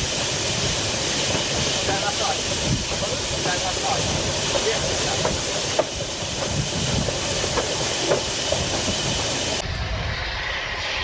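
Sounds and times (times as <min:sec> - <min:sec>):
hiss of steam: 0:00.0 - 0:11.0
steam locomotive running: 0:00.0 - 0:11.0.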